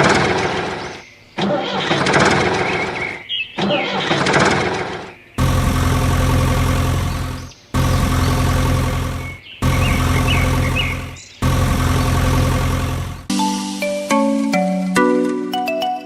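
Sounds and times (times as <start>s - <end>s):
motor humming: 5.4s - 13.3s.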